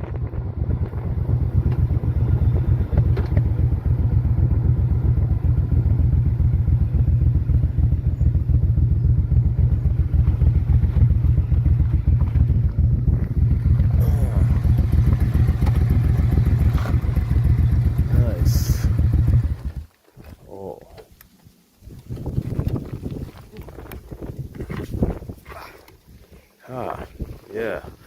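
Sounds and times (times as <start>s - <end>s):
motorcycle engine running: 0.0s - 19.9s.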